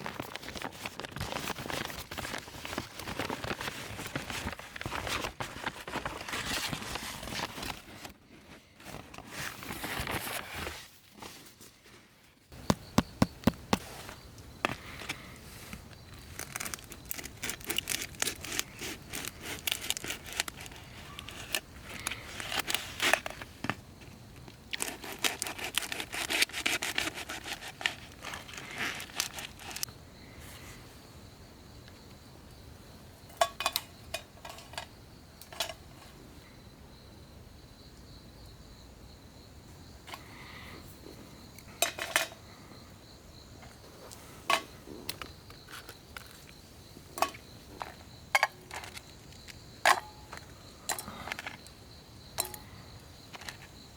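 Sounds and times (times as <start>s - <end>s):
rustling and crinkling handling noise: 0.0s - 29.9s.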